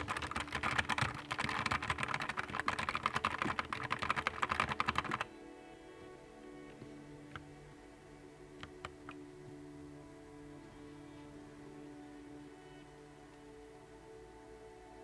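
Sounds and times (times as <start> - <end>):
keyboard typing clicks: 0.0 - 5.3.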